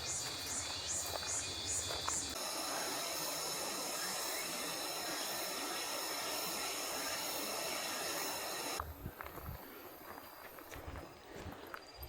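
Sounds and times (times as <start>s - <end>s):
cicadas buzzing: 0.0s - 8.8s.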